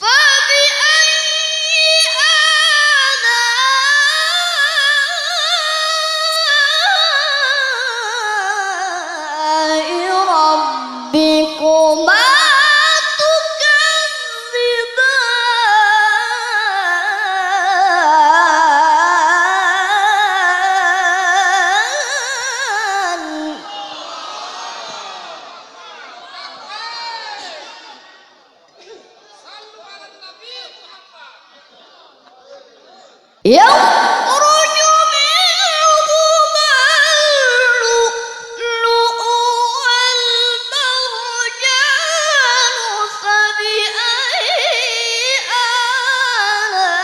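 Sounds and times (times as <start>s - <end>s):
woman reciting melodically: 0.0s - 23.7s, 33.5s - 47.0s.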